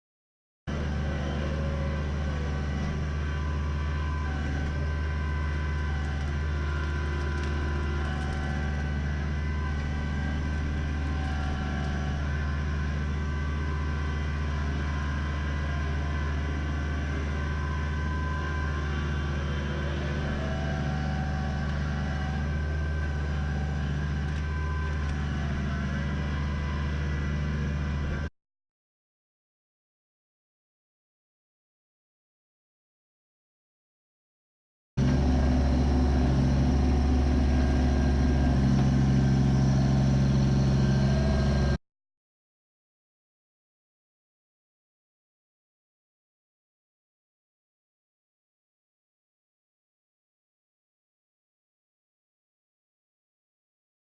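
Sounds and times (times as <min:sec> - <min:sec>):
tractor diesel engine running: 0:00.7 - 0:28.3, 0:35.0 - 0:41.8.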